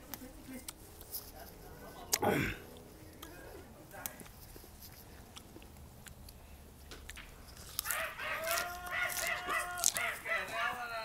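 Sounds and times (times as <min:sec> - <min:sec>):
chewing a leaf: 0:00.0 - 0:11.0
drawn-out pitched call: 0:07.8 - 0:10.6.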